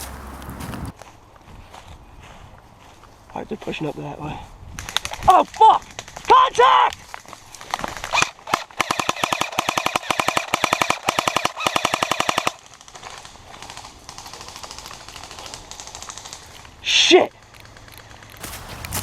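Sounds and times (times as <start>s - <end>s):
airsoft gun rapid fire: 7.6s - 16.6s.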